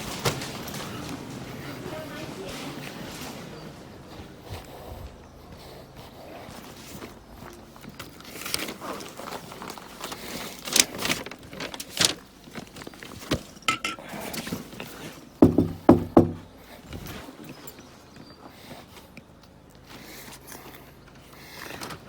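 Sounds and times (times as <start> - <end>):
knocks on a door: 15.4 - 16.5
thuds: 15.4 - 16.5.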